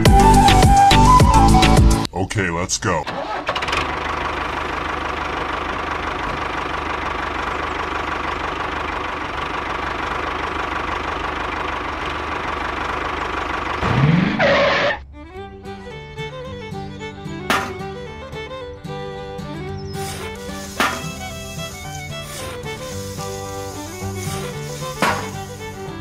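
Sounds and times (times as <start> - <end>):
toy tractor motor running: 20.0 - 26.0.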